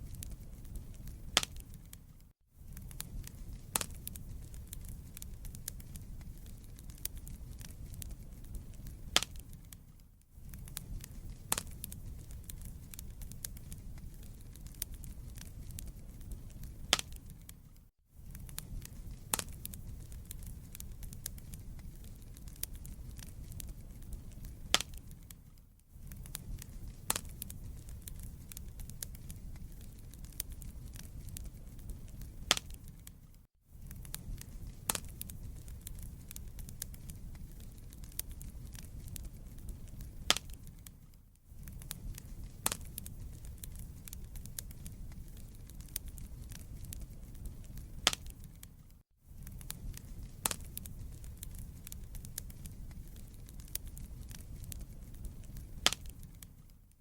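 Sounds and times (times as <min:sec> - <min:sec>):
low fire rumble: 0:00.0 - 0:56.9
wood fire crackling: 0:00.0 - 0:57.0.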